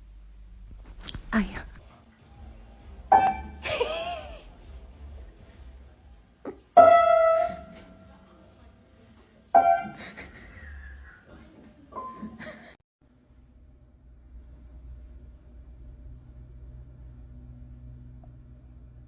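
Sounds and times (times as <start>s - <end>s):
piano notes: 2.4s - 3.7s, 6.8s - 8.0s.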